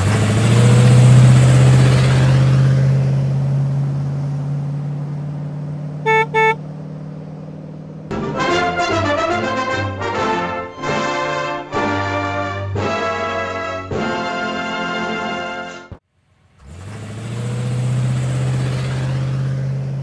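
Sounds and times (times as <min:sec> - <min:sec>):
car engine droning: 0:00.0 - 0:10.6, 0:16.1 - 0:20.0
car horn toots: 0:06.0 - 0:06.6
brass music: 0:06.1 - 0:06.6, 0:08.1 - 0:15.9.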